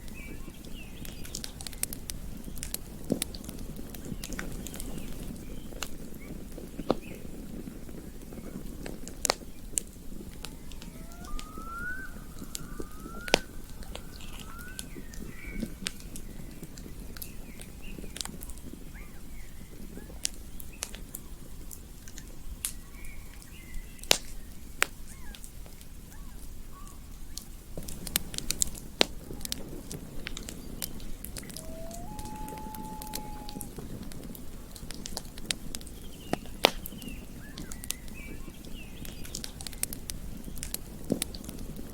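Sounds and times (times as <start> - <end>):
campfire crackling and popping: 0.0 - 22.8, 24.0 - 26.5, 27.3 - 41.9
rising whistle-like calls: 10.6 - 15.6, 31.4 - 33.7.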